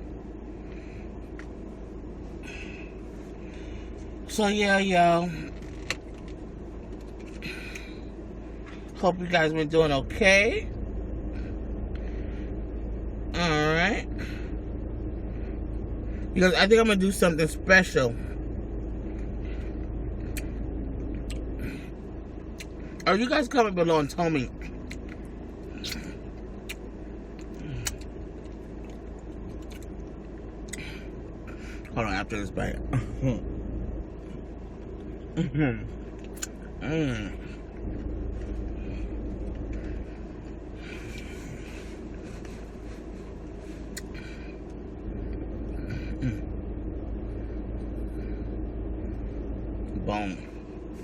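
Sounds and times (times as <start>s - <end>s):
steady low hum: 0.0s - 51.0s
chewing with crunches: 5.5s - 9.0s, 24.7s - 31.2s, 35.9s - 45.5s
person chewing food: 24.8s - 30.9s, 36.1s - 36.7s.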